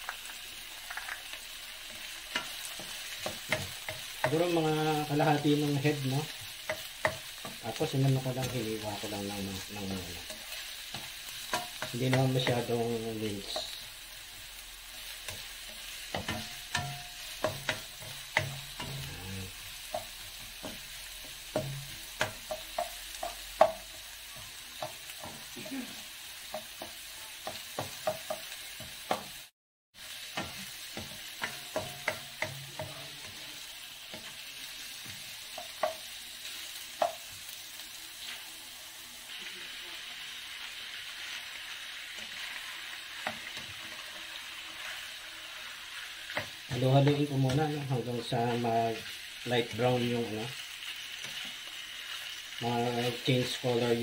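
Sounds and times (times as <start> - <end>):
meat frying: 0.0 - 54.0
onions sizzling in oil: 0.0 - 54.0
spatula scraping pan: 1.8 - 13.9, 15.0 - 29.3, 40.7 - 50.0.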